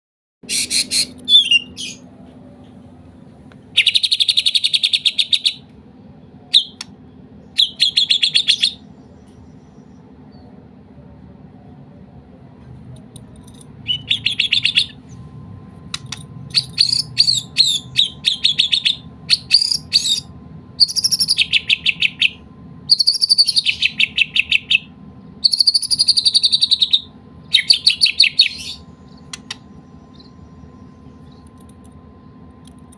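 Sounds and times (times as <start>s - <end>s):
bird singing chattering notes: 0.5s - 2.1s, 3.7s - 5.7s, 6.5s - 10.5s, 13.8s - 15.3s, 15.9s - 31.6s.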